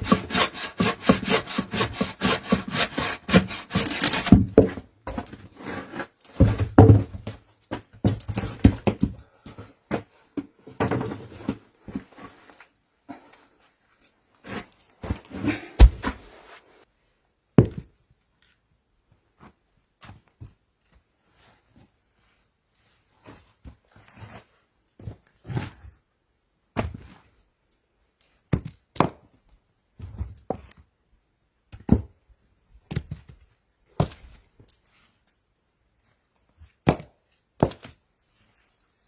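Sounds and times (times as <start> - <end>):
chopping on wood: 15.8 - 16.2.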